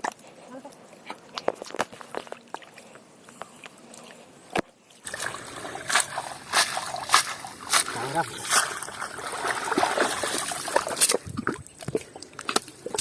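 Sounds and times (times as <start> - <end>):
water sloshing and trickling: 1.4 - 13.0
water splash: 5.0 - 13.0.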